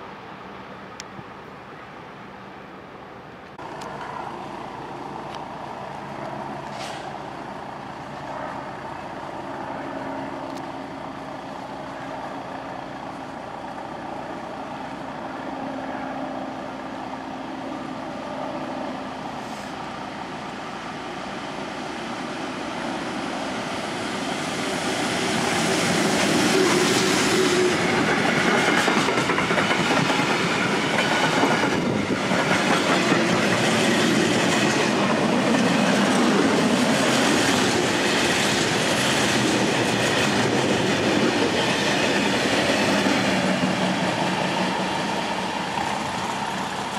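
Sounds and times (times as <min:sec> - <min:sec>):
freight train passing: 0:00.0 - 0:46.9.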